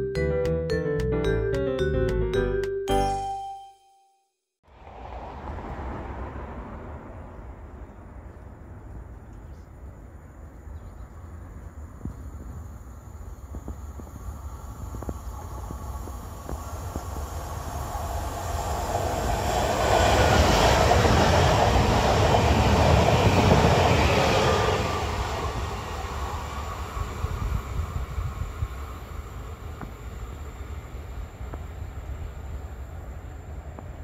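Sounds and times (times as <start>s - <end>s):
electric train passing: 4.7s - 9.2s, 12.7s - 34.0s.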